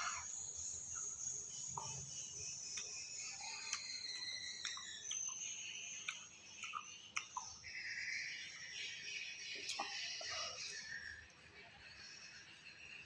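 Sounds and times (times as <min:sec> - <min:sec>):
person chewing crunchy fruit: 0:01.8 - 0:07.6.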